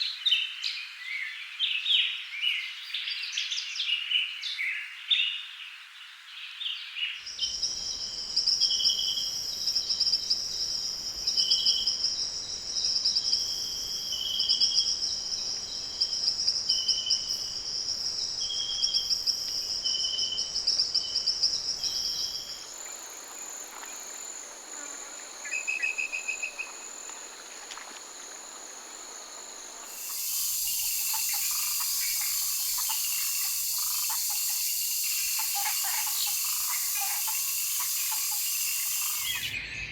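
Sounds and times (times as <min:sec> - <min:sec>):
loud steady hiss: 0:07.4 - 0:39.9
high-pitched insect buzz: 0:07.5 - 0:39.7
bird calls: 0:19.9 - 0:28.2, 0:29.7 - 0:39.9.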